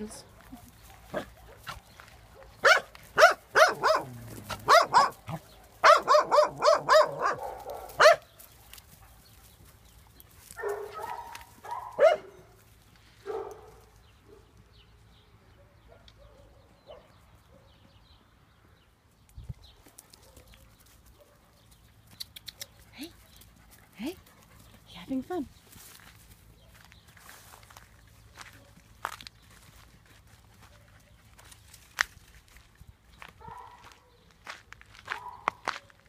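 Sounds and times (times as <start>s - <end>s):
dogs barking: 0.8s - 8.3s, 10.6s - 12.5s, 13.2s - 14.5s, 15.6s - 17.8s, 33.4s - 34.3s, 35.0s - 36.0s.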